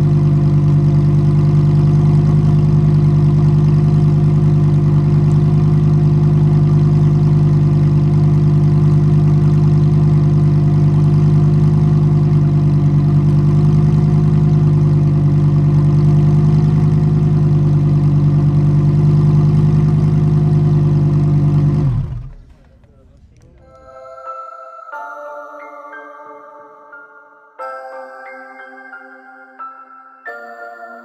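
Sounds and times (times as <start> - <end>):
car engine idling: 0.0 - 23.8.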